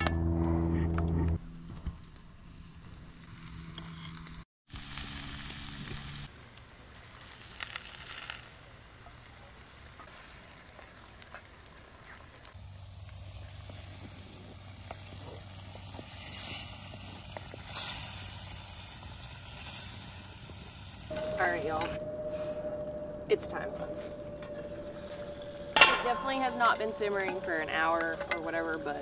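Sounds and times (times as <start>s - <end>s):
patties sizzling in a skillet: 4.7s - 21.7s.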